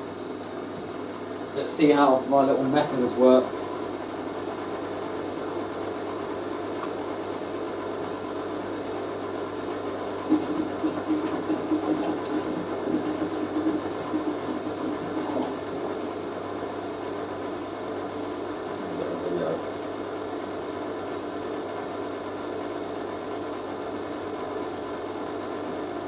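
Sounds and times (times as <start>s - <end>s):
water sloshing: 10.1s - 16.2s
washing machine drum turning: 10.1s - 16.3s.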